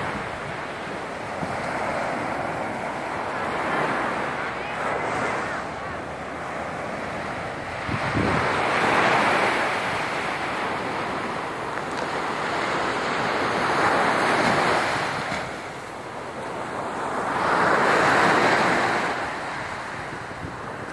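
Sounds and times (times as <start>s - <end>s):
surf breaking on beach: 0.0s - 20.9s
wind buffeting microphone: 4.6s - 11.2s, 19.1s - 20.9s.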